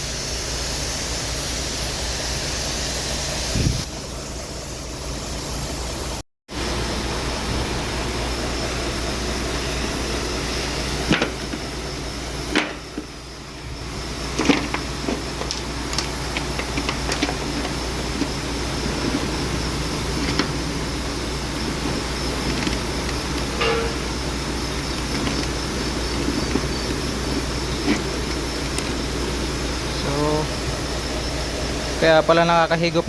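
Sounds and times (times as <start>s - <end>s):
mechanical hum: 0.0s - 33.0s
sharp clicks and knocks: 14.4s - 18.4s.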